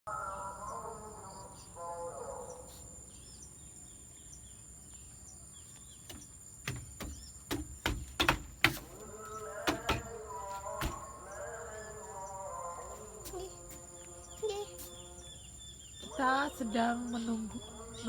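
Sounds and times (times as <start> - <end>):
high insect buzz: 0.1 - 18.0
small birds chirping: 0.1 - 18.0
sharp knocks: 6.1 - 11.1.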